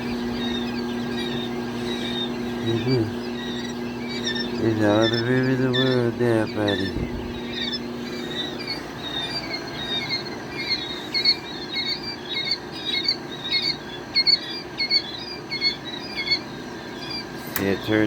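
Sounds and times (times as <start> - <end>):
baby chicks peeping: 0.0 - 18.0.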